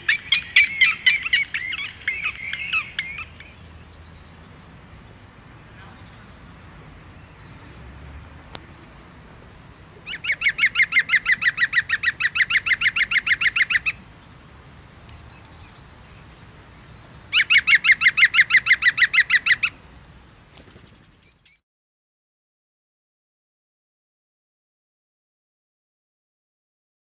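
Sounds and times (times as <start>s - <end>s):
bird calling rapid repeated notes: 10.0s - 14.0s, 17.3s - 19.8s.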